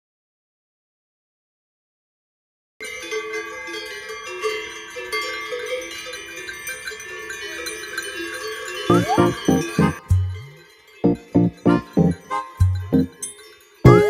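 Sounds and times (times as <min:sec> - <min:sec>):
cowbells clanging: 0:02.8 - 0:14.0.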